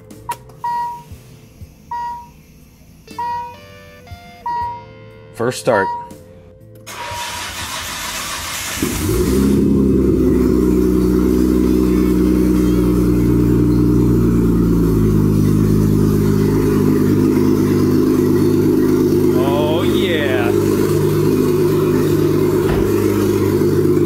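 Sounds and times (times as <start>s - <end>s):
engine cranking on starter: 6.8s - 24.0s
engine idling: 6.9s - 24.0s.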